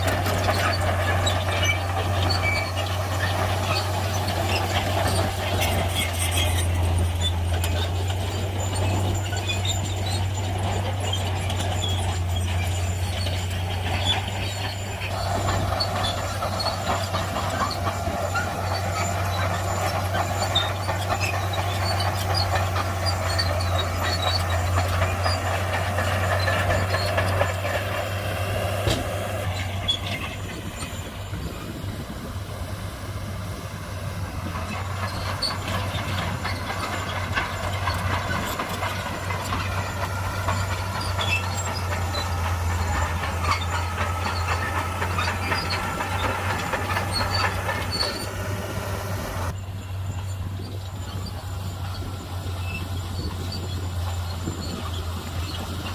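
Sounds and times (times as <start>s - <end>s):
bulldozer diesel engine humming: 0.0s - 55.9s
steel tracks squeaking and clanking: 0.0s - 55.9s.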